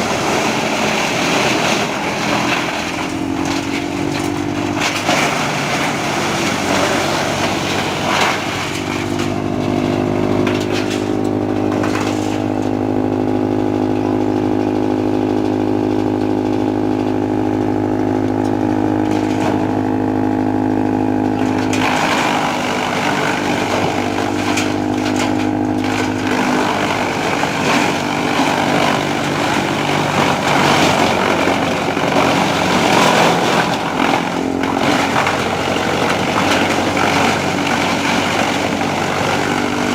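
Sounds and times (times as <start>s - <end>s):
wood being chipped crackling: 0.0s - 12.8s, 21.2s - 39.9s
tractor engine and chipper droning: 0.0s - 39.9s.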